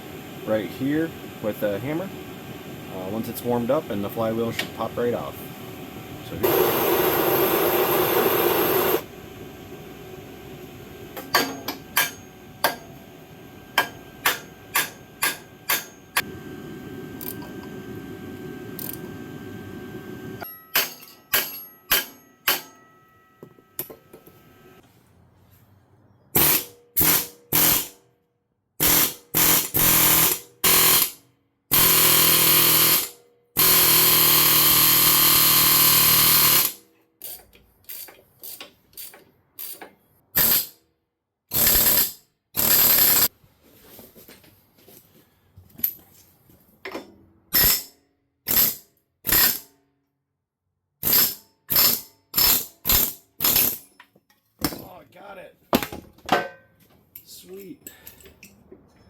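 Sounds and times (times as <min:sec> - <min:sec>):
power tool running in bursts: 0:06.2 - 0:10.5, 0:28.8 - 0:36.8.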